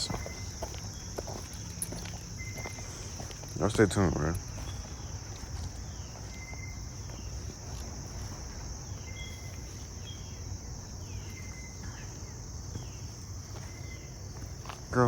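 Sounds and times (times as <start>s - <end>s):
insect chorus drone: 0.0s - 15.0s.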